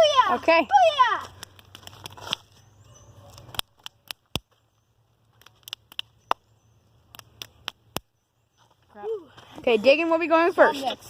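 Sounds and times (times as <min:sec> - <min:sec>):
sharp clicks and taps: 0:05.3 - 0:06.4.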